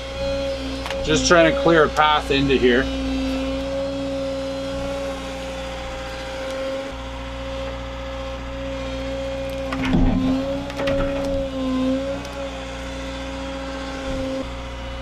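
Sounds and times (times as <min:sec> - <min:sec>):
excavator engine whining: 0:00.0 - 0:15.0
wood cracking and snapping: 0:09.4 - 0:12.5.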